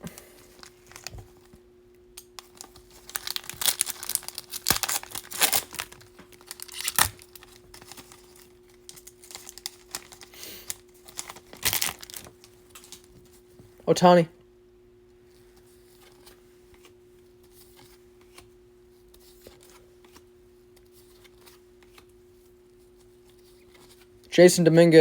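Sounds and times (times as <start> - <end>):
faint steady hum: 0.0 - 25.0
wrapper tearing and crinkling: 0.6 - 1.2, 2.4 - 13.1.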